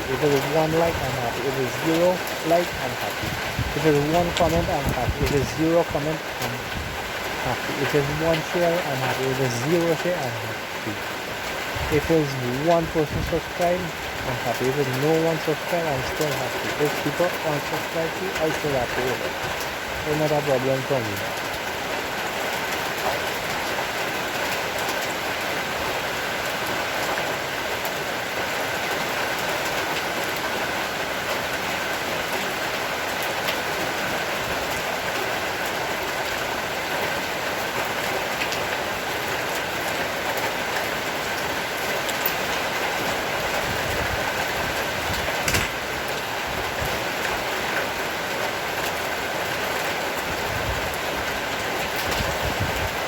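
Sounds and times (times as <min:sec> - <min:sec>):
low rumbles: 0:00.0 - 0:21.0
heavy rain: 0:00.0 - 0:53.0.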